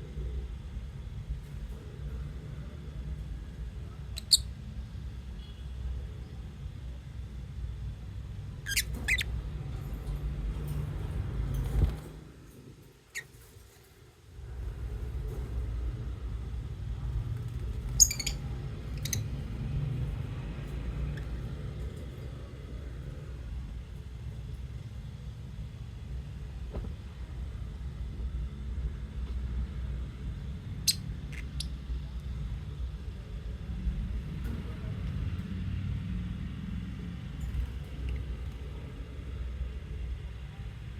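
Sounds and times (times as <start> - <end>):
lovebirds chirping: 4.1 - 4.5, 8.6 - 9.3, 17.9 - 19.4.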